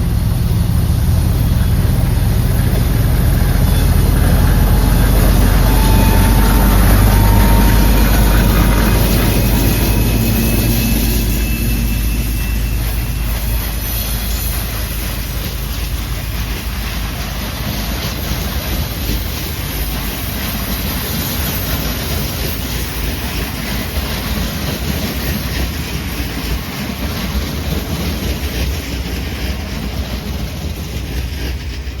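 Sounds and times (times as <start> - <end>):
diesel engine throbbing: 0.0 - 23.4
train on rails: 0.0 - 32.0.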